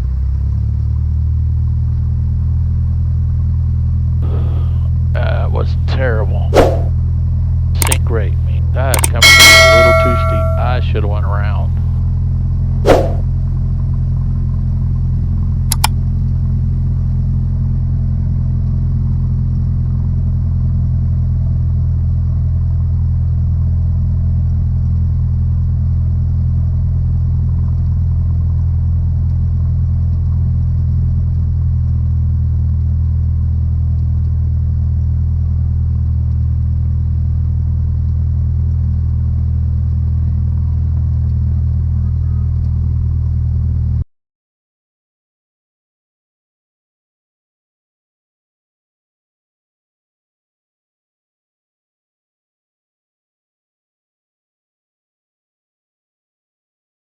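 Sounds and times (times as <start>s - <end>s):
piston aircraft engine droning: 4.1s - 23.1s
sharp click: 7.8s - 8.1s, 8.9s - 10.7s, 15.7s - 16.0s.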